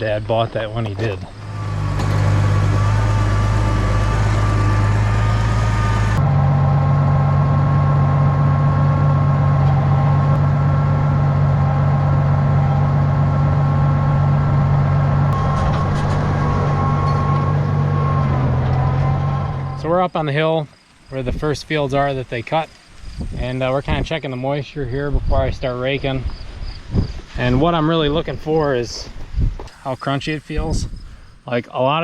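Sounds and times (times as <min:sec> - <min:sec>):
tractor engine running: 0:00.0 - 0:25.5.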